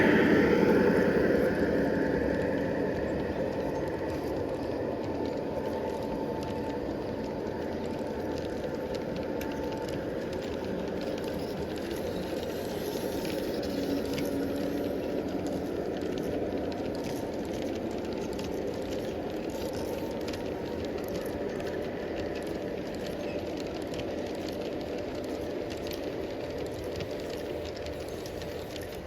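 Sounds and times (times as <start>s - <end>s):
model train rumbling on track: 0.0s - 29.0s
faint clicks: 0.2s - 29.0s.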